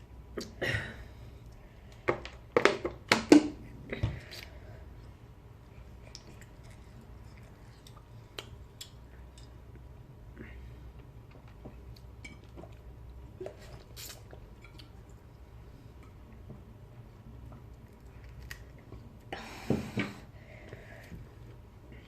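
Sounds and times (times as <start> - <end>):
low steady hum: 0.0 - 22.0
person chewing food: 5.6 - 9.9.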